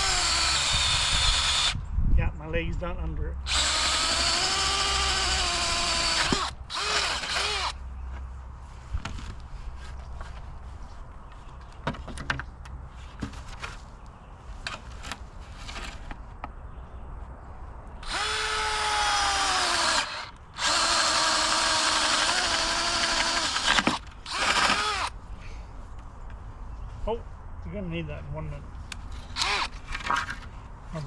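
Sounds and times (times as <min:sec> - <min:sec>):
power drill boring into wood: 0:00.0 - 0:01.8, 0:03.5 - 0:07.8, 0:18.0 - 0:25.1, 0:29.4 - 0:29.7.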